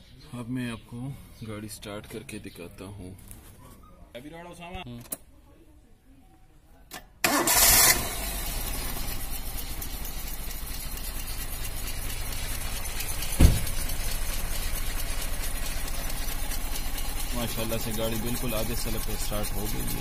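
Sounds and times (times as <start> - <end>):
car engine starting and idling: 7.2 - 20.0
thump: 13.3 - 13.9.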